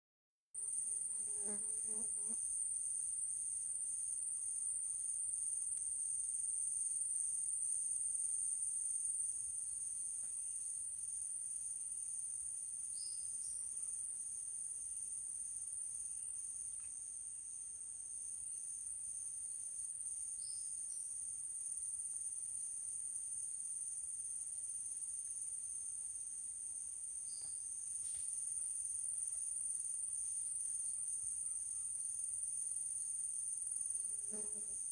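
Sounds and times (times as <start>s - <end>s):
crickets trilling: 10.7s - 34.9s.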